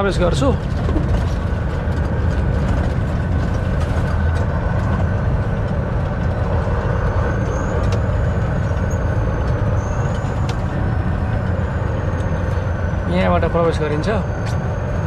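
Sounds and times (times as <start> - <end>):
diesel truck engine drone: 0.0 - 15.0
faint high squeal: 7.0 - 10.7.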